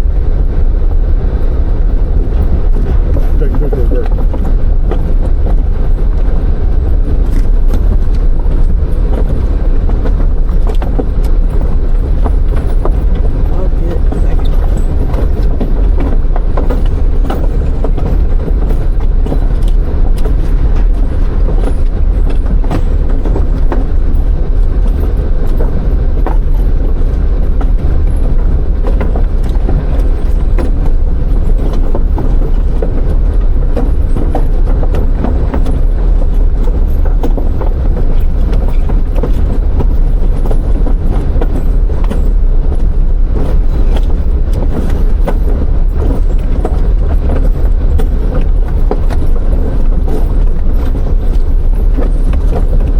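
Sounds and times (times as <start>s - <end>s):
tyres rumbling on wooden planks: 0.0s - 52.9s.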